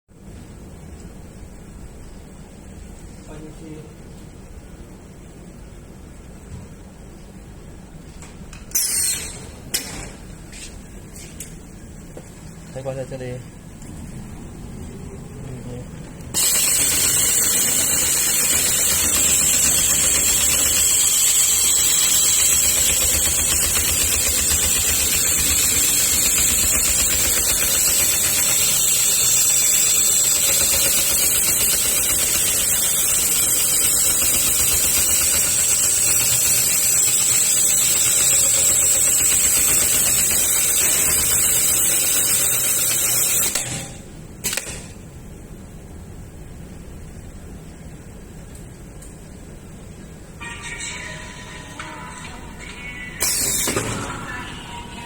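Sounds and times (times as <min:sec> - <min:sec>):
stitching machine mechanical chatter: 0:16.3 - 0:43.9.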